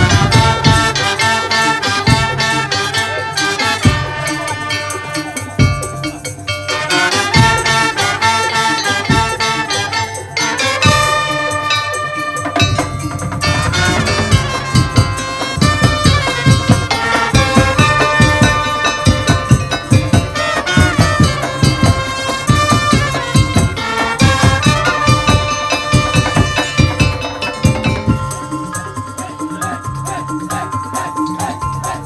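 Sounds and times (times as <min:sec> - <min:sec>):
rapid drums and percussion: 0:00.0 - 0:32.0
sustained melody line: 0:00.0 - 0:32.0.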